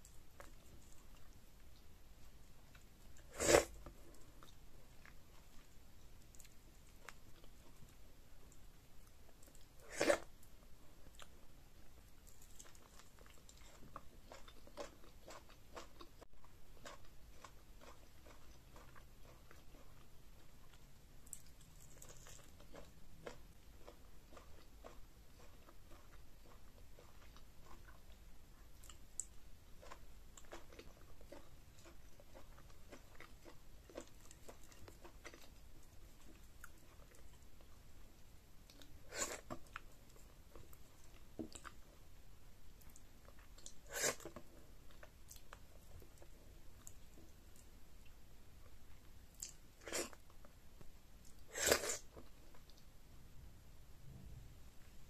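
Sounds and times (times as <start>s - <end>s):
wet chewing and smacking: 12.2s - 28.2s.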